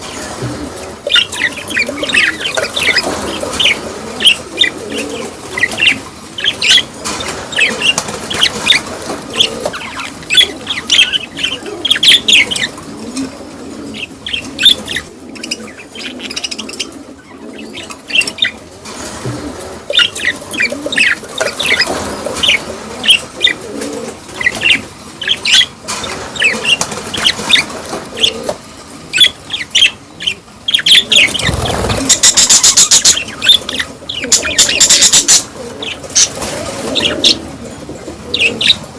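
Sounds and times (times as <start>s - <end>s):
budgerigars chirping: 1.0s - 12.8s, 14.0s - 18.6s, 19.9s - 23.6s, 29.1s - 37.4s.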